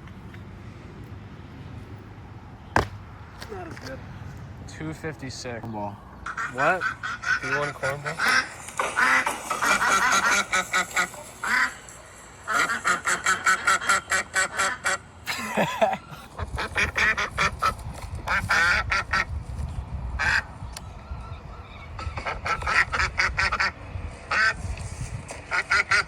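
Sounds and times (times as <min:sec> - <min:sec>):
ducks quacking: 0:06.2 - 0:19.3, 0:20.2 - 0:20.5, 0:21.8 - 0:24.7, 0:25.3 - 0:26.0.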